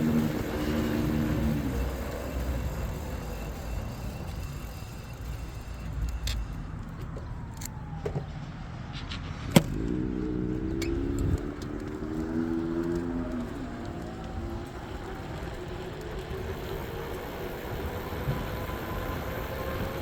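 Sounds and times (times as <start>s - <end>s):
motor hum: 0.0s - 8.0s
wind and rolling tyres rumble: 0.0s - 20.0s.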